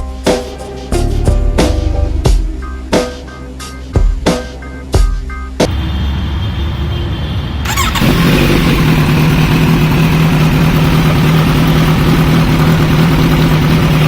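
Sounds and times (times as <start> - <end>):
motorcycle engine idling: 7.6 - 14.0.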